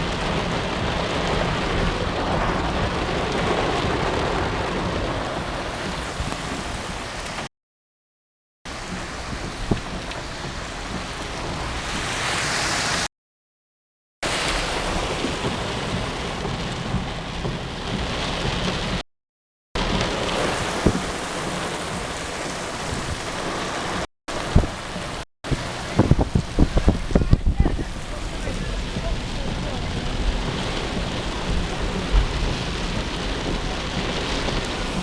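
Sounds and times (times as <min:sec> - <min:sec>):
heavy rain pouring: 0:00.0 - 0:07.5, 0:08.7 - 0:13.1, 0:14.2 - 0:19.0, 0:19.8 - 0:35.0
sharp splashes or knocks: 0:19.8 - 0:22.2.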